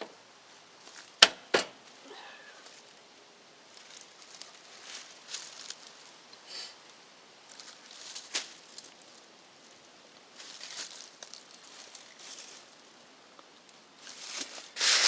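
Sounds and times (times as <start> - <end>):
hands handling parts and wire: 1.0 - 1.9.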